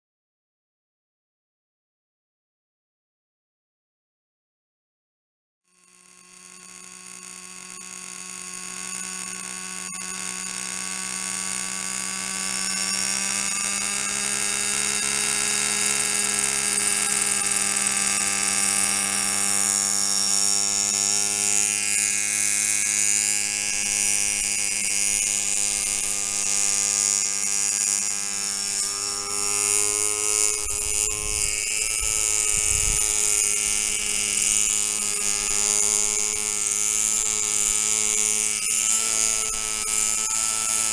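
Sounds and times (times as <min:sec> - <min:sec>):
model helicopter engine buzzing: 0:05.7 - 0:40.9.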